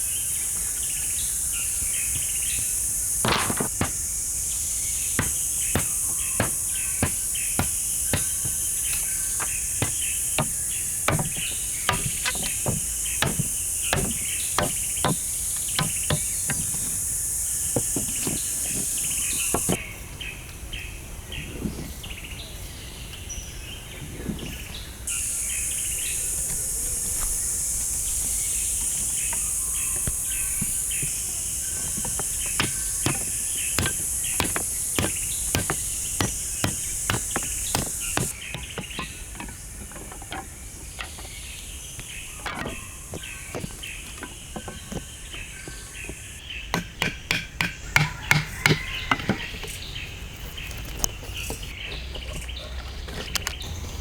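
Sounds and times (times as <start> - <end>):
high insect buzz: 0.0 - 19.8, 25.1 - 39.2
rapid hand tool knocks: 3.2 - 4.2, 5.0 - 19.8, 28.8 - 41.2, 42.0 - 49.5.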